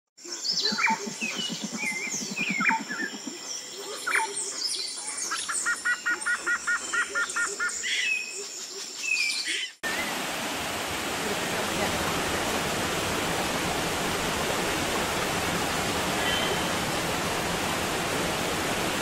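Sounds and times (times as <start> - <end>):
birds calling and chirping: 0.2 - 10.2, 15.1 - 19.0.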